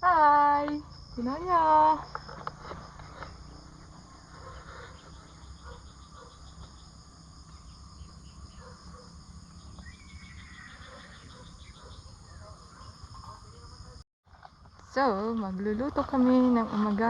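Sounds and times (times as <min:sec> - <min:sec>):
insect drone: 0:00.0 - 0:17.0
bird chirps: 0:04.4 - 0:13.7.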